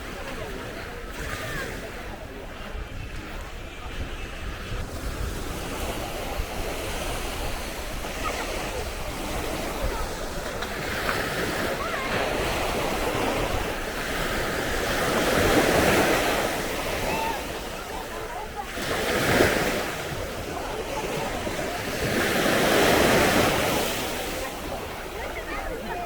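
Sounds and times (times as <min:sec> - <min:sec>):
wind buffeting microphone: 0:00.0 - 0:18.4
sea waves breaking: 0:00.0 - 0:26.0.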